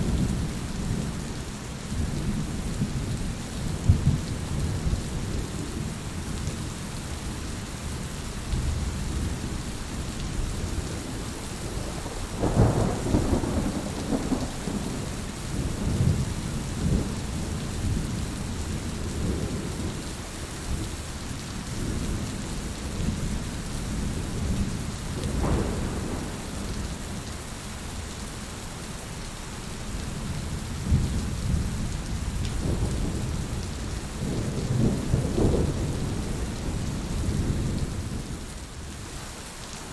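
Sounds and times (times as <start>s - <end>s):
rain falling: 0.0s - 39.9s
thunder rumbling: 10.6s - 17.6s, 25.2s - 27.3s, 30.8s - 38.4s.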